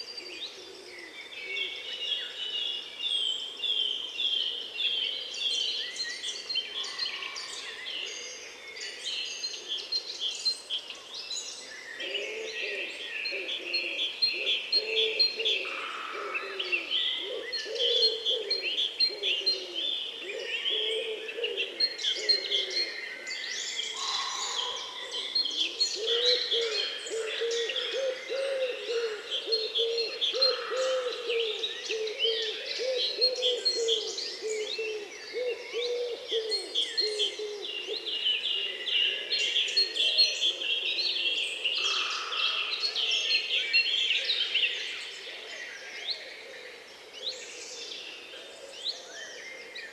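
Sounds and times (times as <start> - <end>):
birds chirping and trilling: 0.0 - 49.9.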